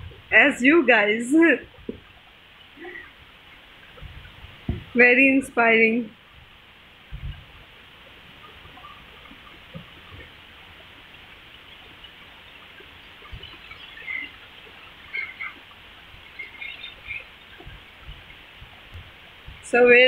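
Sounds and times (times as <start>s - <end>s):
heavy rain falling: 0.0s - 20.0s
high bird chirps: 13.2s - 14.4s, 15.0s - 15.6s, 16.2s - 17.6s.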